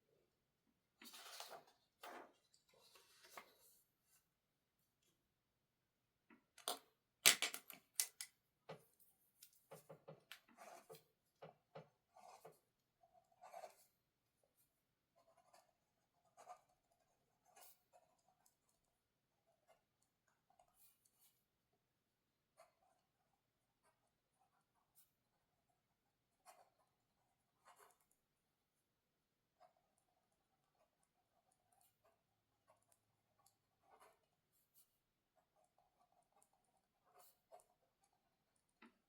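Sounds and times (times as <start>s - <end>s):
light taps and scratches: 8.7s - 13.9s.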